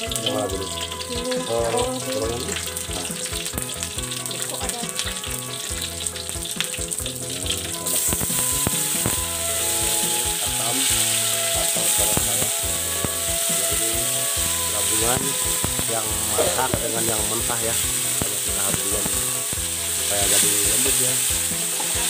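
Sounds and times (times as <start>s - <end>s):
food sizzling in oil: 0.0s - 22.0s
spatula scraping a wok: 7.8s - 22.0s.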